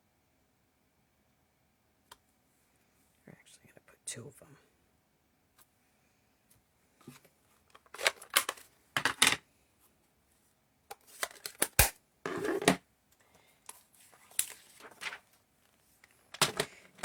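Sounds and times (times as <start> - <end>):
paper rustling and scraping: 14.0 - 15.3.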